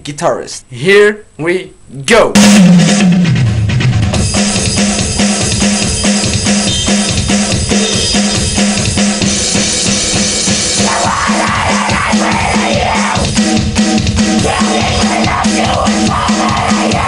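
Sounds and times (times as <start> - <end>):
drum kit beat: 2.3 - 17.0
pulsing bass note: 2.4 - 4.2
cymbals: 2.4 - 17.0
rock band music: 2.4 - 17.0.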